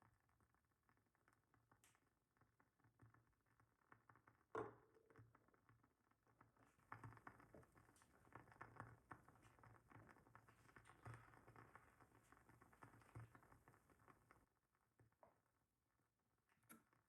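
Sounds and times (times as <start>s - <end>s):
candle wick crackling: 6.4s - 14.4s.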